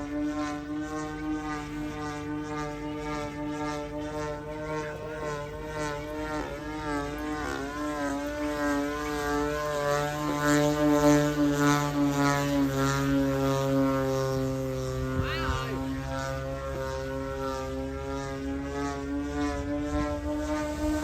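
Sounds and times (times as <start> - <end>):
model airplane engine running: 0.0 - 21.0.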